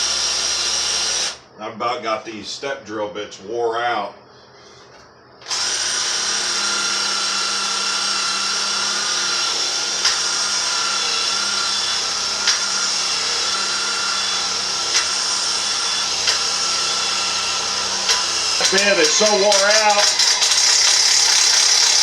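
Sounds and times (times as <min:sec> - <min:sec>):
hammer drill drilling into steel: 0:00.0 - 0:01.4, 0:05.4 - 0:22.0
sharp ticks: 0:18.1 - 0:22.0.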